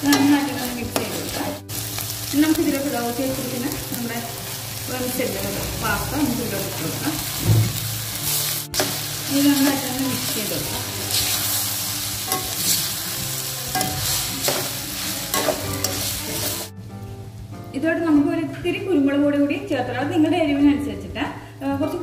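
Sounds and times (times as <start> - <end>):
spoon scraping and knocking pan: 0.0 - 1.6, 7.2 - 13.0, 13.7 - 16.7
food sizzling in a wok: 0.0 - 17.7.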